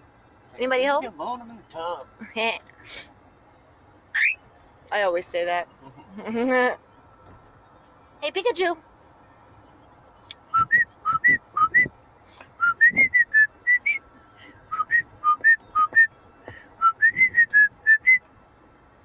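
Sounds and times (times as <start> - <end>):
cockatiel whistling: 10.5 - 11.9, 12.6 - 14.0, 14.7 - 16.1, 16.8 - 18.2.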